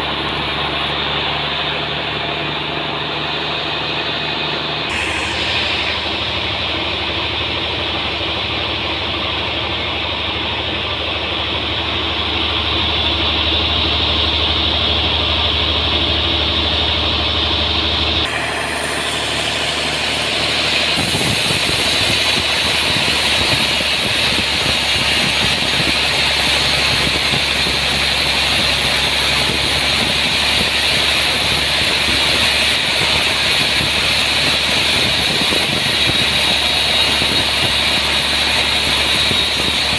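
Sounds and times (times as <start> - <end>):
sawmill sawing log: 0.0 - 39.9.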